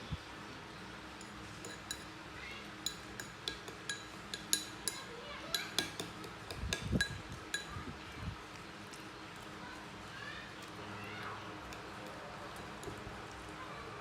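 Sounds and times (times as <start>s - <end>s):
hard objects clinking together: 1.2s - 2.2s, 2.8s - 7.8s.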